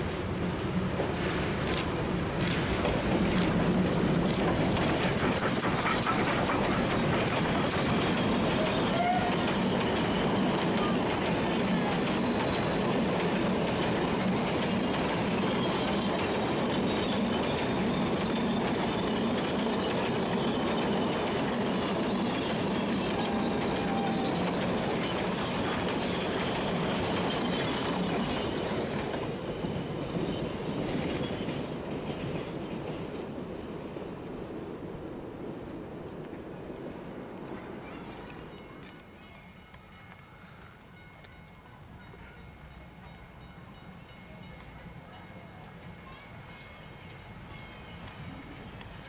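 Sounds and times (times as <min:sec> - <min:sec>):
train wheels clattering over rail joints: 0:00.0 - 0:33.8.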